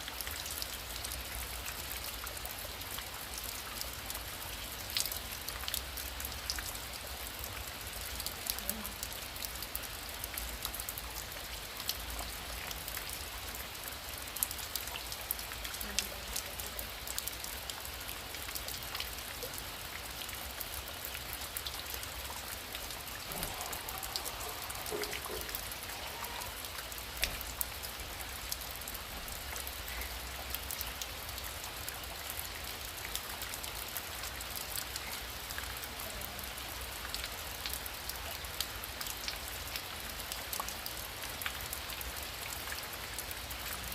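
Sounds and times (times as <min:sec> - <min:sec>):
heavy rain falling: 0:00.0 - 0:43.9
raindrops ticking on a surface: 0:00.0 - 0:43.9.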